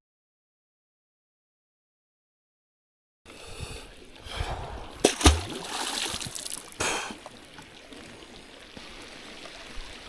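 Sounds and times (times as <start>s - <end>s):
water splashing: 3.9s - 10.0s.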